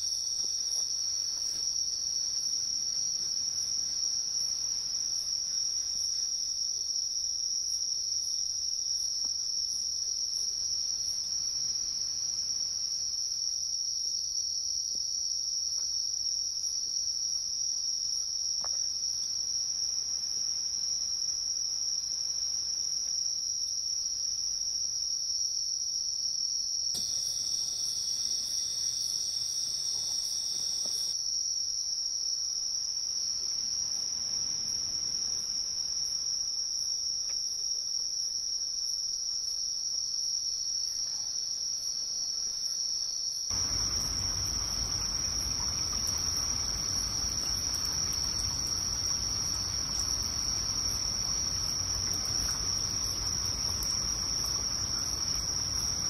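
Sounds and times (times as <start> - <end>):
crickets trilling: 0.0 - 56.0
bright hiss: 27.0 - 31.2.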